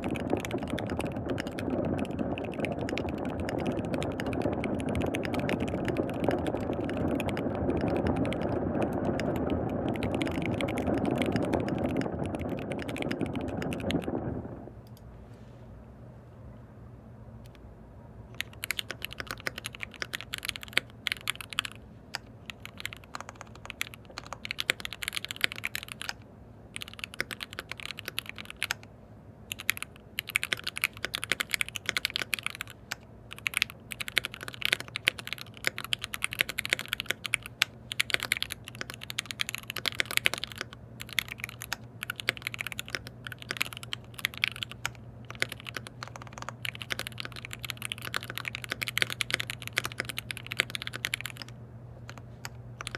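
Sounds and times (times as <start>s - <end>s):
fast mechanical keyboard typing: 0.0s - 14.6s, 18.4s - 26.2s, 26.8s - 28.9s, 29.5s - 52.9s.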